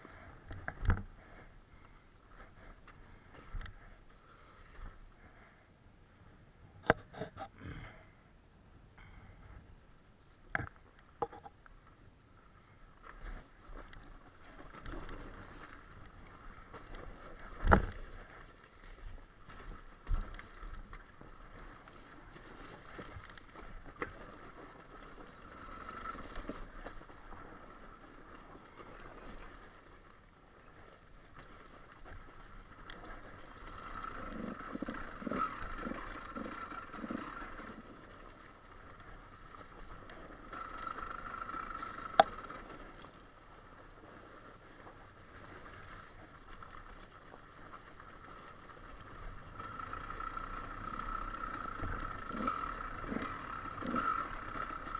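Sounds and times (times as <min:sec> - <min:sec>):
motorcycle engine at low revs: 0:12.7 - 0:54.9.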